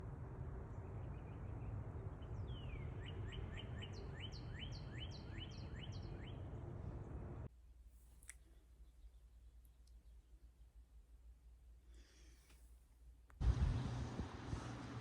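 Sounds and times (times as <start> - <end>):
songbird singing: 0.0 - 7.5, 8.4 - 10.4
low outdoor background noise: 0.0 - 15.0.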